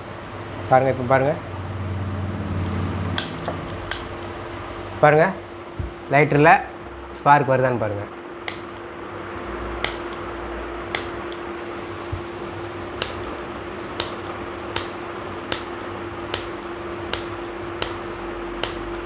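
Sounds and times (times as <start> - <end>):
steady low hum: 0.0 - 7.2, 8.0 - 19.0
spark lighter clicking: 3.2 - 4.6, 8.5 - 8.9, 9.8 - 12.0, 12.9 - 19.0.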